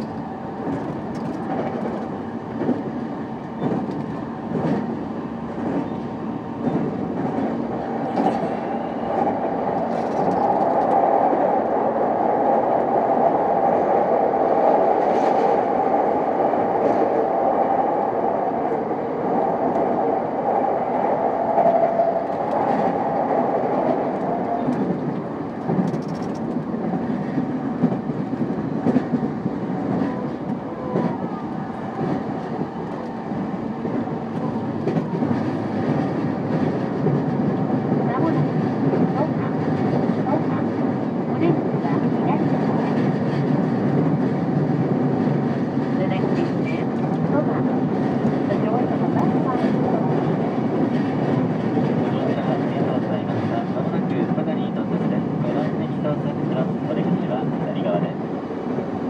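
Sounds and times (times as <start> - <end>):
rail joint clicks: 0.0 - 11.8, 21.1 - 55.8
wheels rumbling on rail: 0.0 - 59.0.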